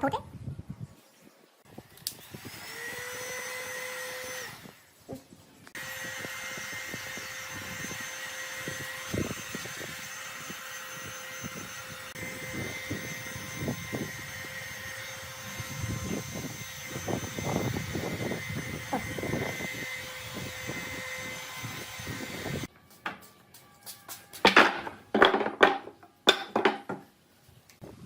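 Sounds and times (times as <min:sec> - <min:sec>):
power tool motor whine: 0:02.1 - 0:04.8, 0:05.8 - 0:22.7.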